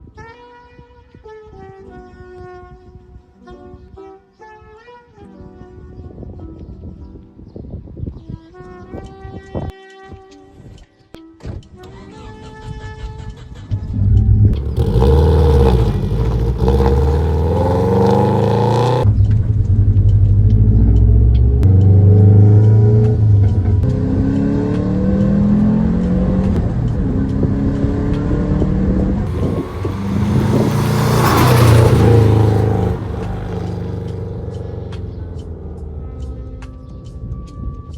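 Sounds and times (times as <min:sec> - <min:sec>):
car engine accelerating: 0:13.9 - 0:37.6.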